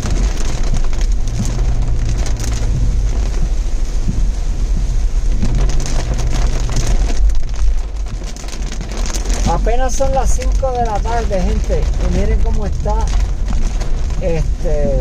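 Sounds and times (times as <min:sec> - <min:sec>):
car rumbling on road: 0:00.0 - 0:15.0
heavy rain pattering on car: 0:00.0 - 0:15.0.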